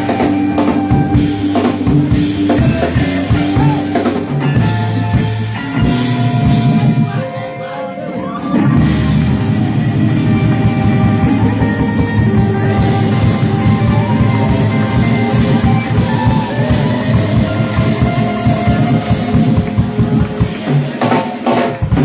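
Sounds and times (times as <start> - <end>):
drum kit: 0.0 - 7.4, 8.4 - 22.0
bass guitar: 0.0 - 22.0
electric guitar: 0.0 - 22.0.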